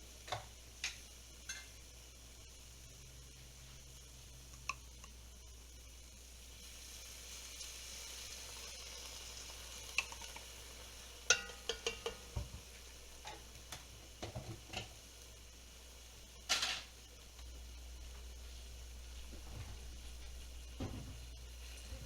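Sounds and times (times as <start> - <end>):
pot hissing: 0.0 - 22.0
metal clinks on a pot: 11.3 - 12.2.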